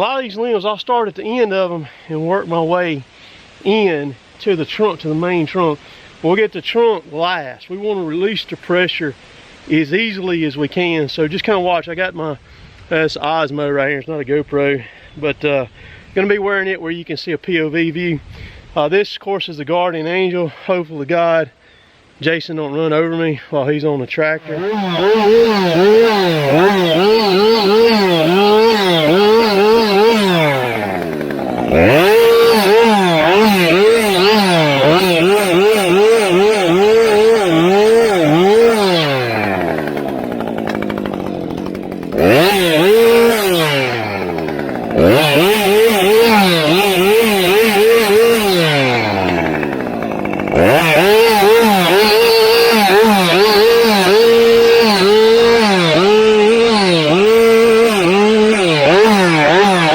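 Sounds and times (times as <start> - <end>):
chainsaw cutting limbs: 24.4 - 59.9.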